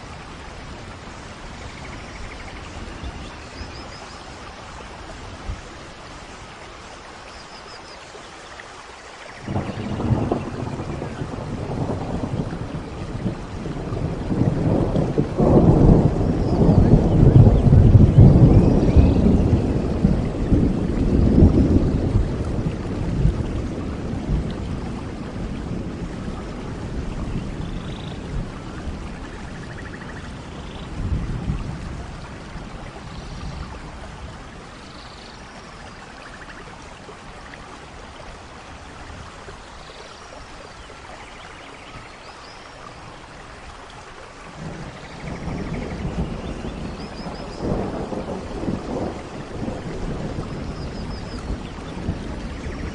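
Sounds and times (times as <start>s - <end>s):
rain falling: 0.0s - 52.9s
thunder rumbling: 9.4s - 35.8s, 44.5s - 52.9s.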